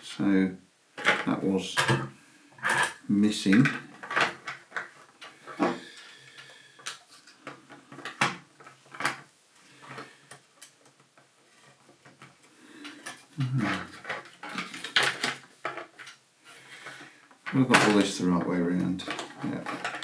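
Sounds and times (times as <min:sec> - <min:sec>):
packaging clicks and rustles: 0:11.8 - 0:18.2.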